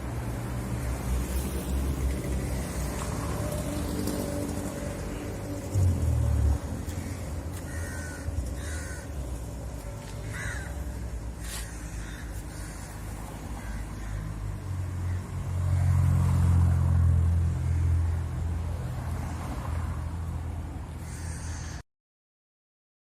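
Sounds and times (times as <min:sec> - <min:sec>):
crows cawing: 0:06.8 - 0:15.3, 0:17.6 - 0:18.3, 0:21.0 - 0:21.8.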